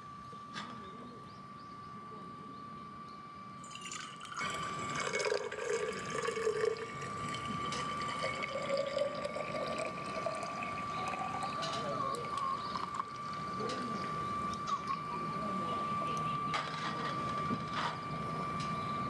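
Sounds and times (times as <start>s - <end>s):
water pouring into a kettle: 3.6s - 15.1s.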